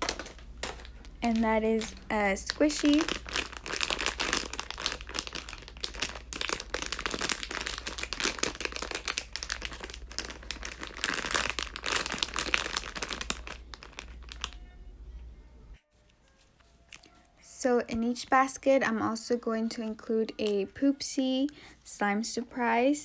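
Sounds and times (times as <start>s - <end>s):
crinkly packaging crumpled: 0.0s - 14.8s, 15.9s - 17.6s.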